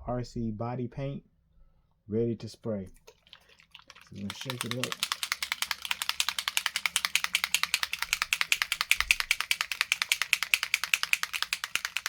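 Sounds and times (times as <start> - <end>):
paint bottle rattling when shaken: 2.9 - 12.0.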